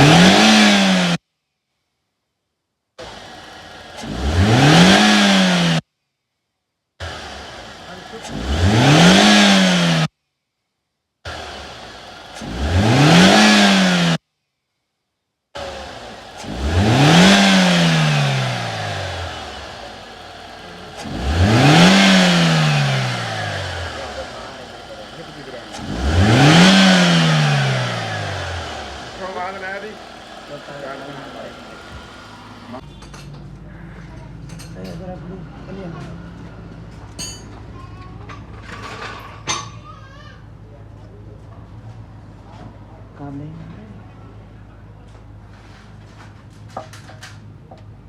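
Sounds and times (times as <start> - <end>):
car engine revving: 0.0 - 1.2, 3.0 - 5.8, 7.0 - 10.1, 11.3 - 14.2, 15.6 - 32.8.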